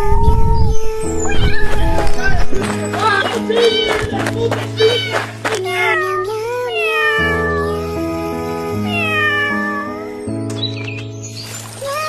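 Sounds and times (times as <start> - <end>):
background music of held chords: 0.6 - 11.9
kitten meowing: 3.3 - 4.2, 4.8 - 7.8, 8.9 - 9.9.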